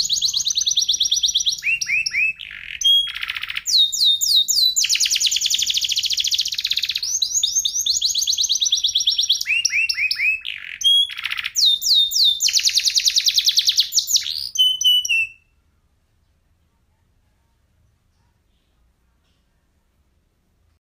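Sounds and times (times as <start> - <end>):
canary singing trills: 0.0 - 16.6.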